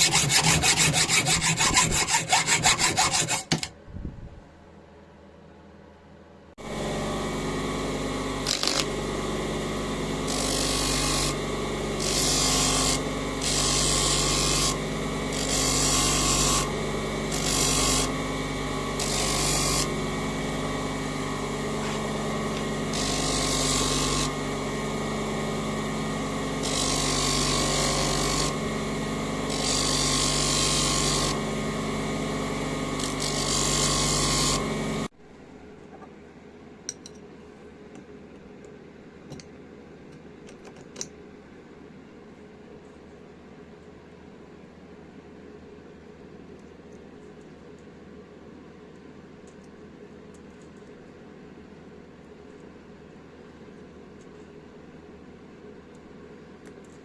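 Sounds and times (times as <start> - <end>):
power tool motor running: 6.6 - 35.1.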